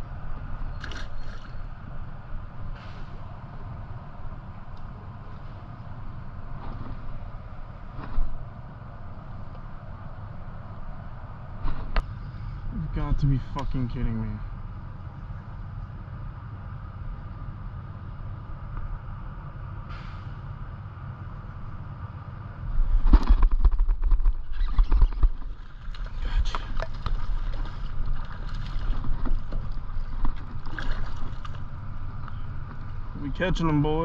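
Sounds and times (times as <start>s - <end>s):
steady low rumble: 0.0s - 34.0s
knocks and thumps on a kayak: 23.0s - 31.6s.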